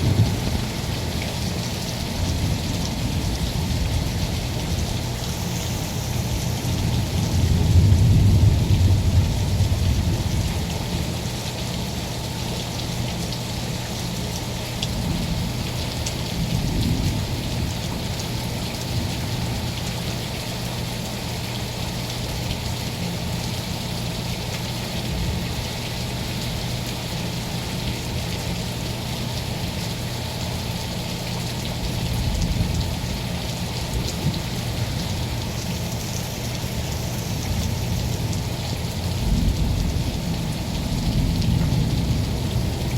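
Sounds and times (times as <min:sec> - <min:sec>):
thunder rumbling: 0:00.0 - 0:10.6, 0:34.0 - 0:42.9
steady rain falling: 0:00.0 - 0:42.9.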